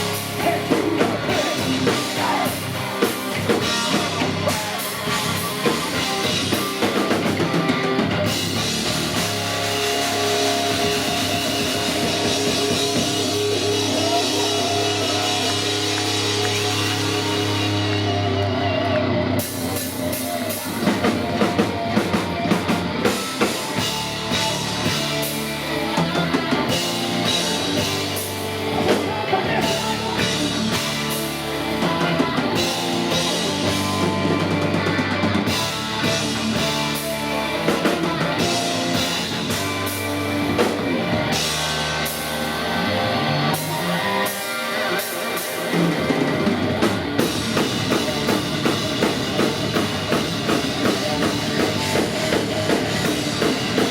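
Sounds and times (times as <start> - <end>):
drum kit: 0.0 - 53.9
electric guitars: 0.0 - 53.9
heavy metal band playing live: 0.0 - 53.9.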